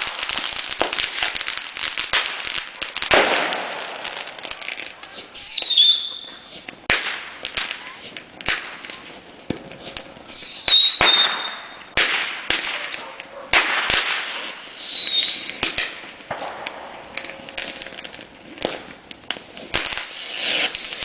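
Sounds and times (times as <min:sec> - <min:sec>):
whistling fireworks shrieking: 0:00.0 - 0:09.2, 0:09.8 - 0:18.9, 0:19.6 - 0:21.0
firecrackers banging and popping: 0:00.0 - 0:21.0.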